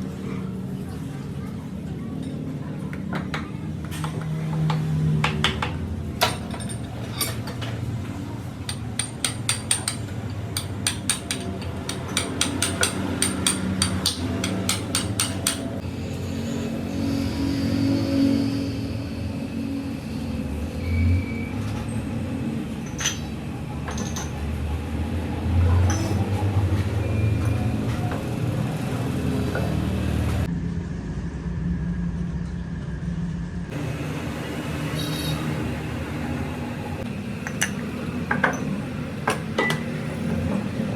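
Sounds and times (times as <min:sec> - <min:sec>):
sharp metallic knocks and clicks: 0:08.7 - 0:15.8
low hum: 0:30.4 - 0:37.1.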